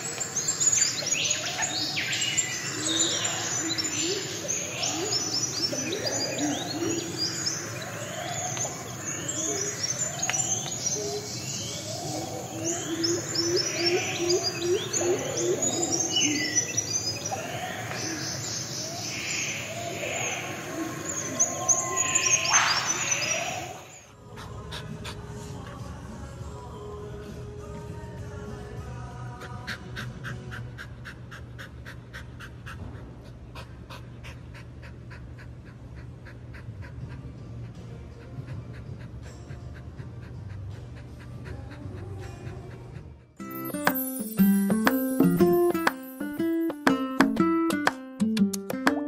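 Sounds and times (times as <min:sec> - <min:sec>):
birds chirping: 0:00.0 - 0:25.8, 0:43.4 - 0:47.6.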